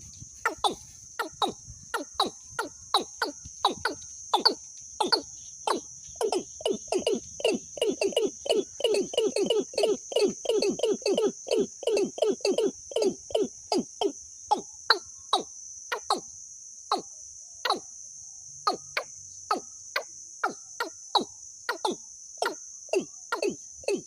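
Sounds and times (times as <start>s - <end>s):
bird calling sharp notes: 0.0s - 13.8s
high-pitched insect drone: 0.0s - 24.0s.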